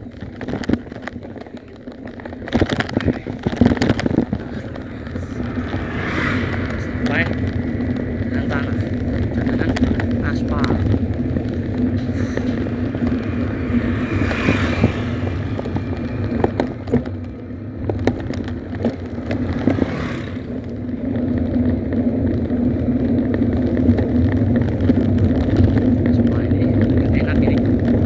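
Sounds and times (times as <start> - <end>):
motorcycle engine running: 0.0 - 28.0
small rattles and clicks: 0.0 - 28.0
rushing noise: 3.0 - 21.9.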